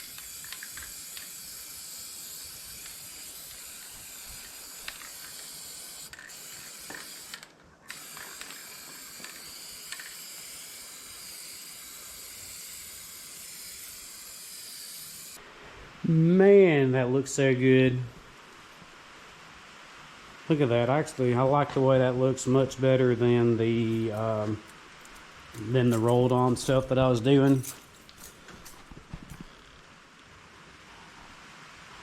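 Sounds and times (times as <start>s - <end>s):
aerosol spray paint hissing: 0.0s - 15.4s.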